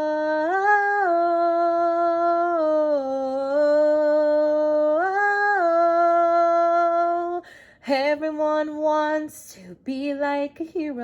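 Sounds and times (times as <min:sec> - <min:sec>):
woman singing unaccompanied: 0:00.0 - 0:11.0
breath: 0:07.4 - 0:07.8.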